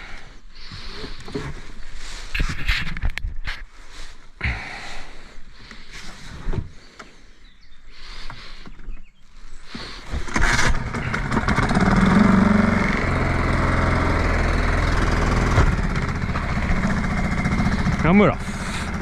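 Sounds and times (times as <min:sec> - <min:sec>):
outboard motor starting and running: 0:00.0 - 0:02.2, 0:09.6 - 0:19.0.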